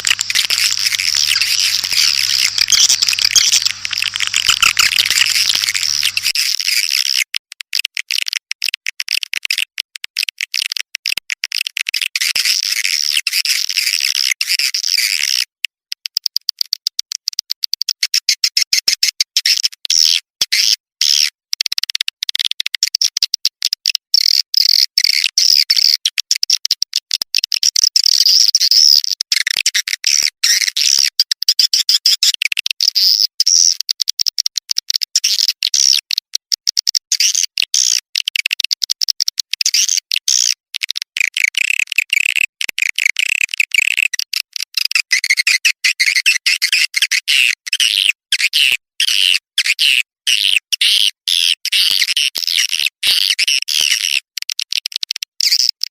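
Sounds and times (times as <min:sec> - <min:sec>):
swiftlets chirping and twittering: 0:00.0 - 0:06.9.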